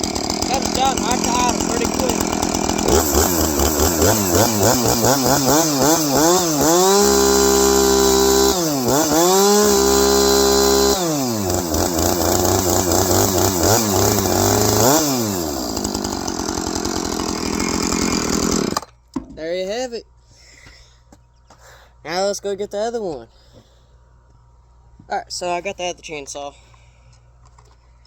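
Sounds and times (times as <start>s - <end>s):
chainsaw engine revving: 0.0s - 18.9s.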